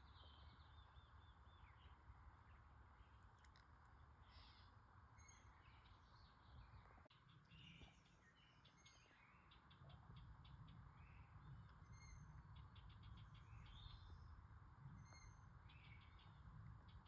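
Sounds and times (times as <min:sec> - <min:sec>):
faint bird chirps: 0:04.2 - 0:17.0.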